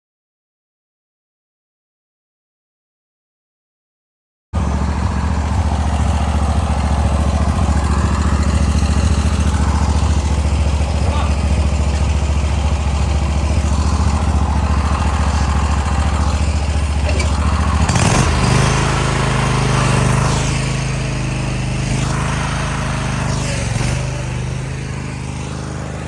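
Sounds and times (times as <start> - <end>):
vehicle engine running: 4.6 - 26.0.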